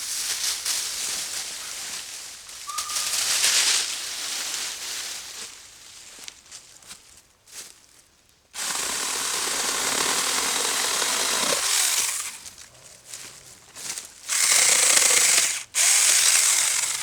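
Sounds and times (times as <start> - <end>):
mini chainsaw cutting wood: 8.6 - 12.5, 14.3 - 17.0.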